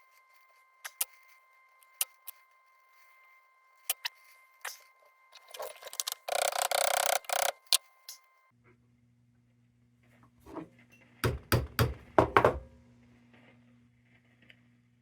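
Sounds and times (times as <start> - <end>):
wire ring scraping: 0.0 - 8.2.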